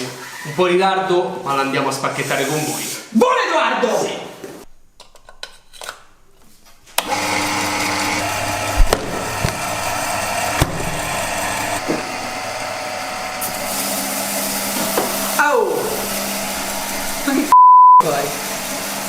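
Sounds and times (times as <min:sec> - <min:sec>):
electric power tool running: 0:07.0 - 0:19.0
sharp knocks: 0:08.7 - 0:09.7.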